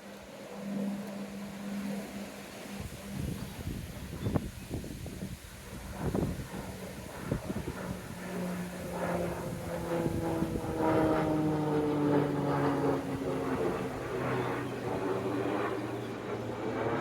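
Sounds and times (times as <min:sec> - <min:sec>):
propeller aircraft engine drone: 0:00.0 - 0:17.0
wind on microphone: 0:00.7 - 0:17.0.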